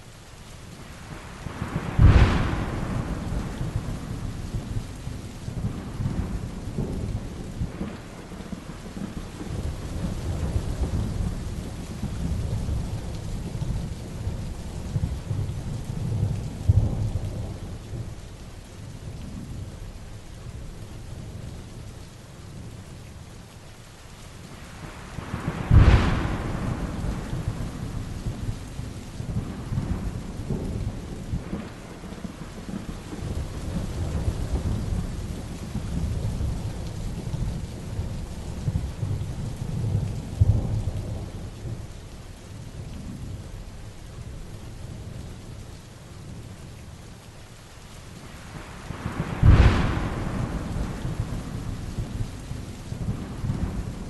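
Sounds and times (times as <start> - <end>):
heavy rain falling: 0.0 - 54.0
low rolling thunder: 1.0 - 18.4, 24.7 - 45.6, 48.2 - 54.0
sharp thunder claps: 1.6 - 4.8, 25.2 - 28.6, 48.9 - 52.3.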